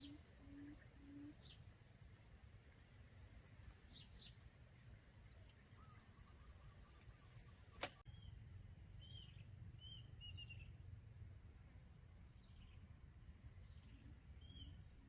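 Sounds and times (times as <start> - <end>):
bird hooting: 0.0 - 1.6.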